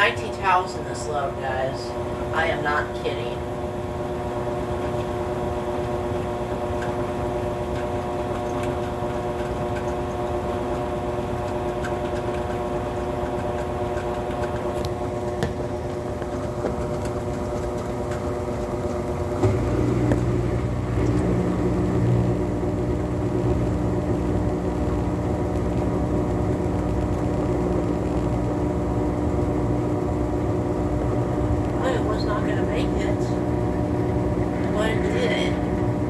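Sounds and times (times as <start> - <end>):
washing machine spinning: 0.0 - 36.0
deep hum: 19.2 - 36.0.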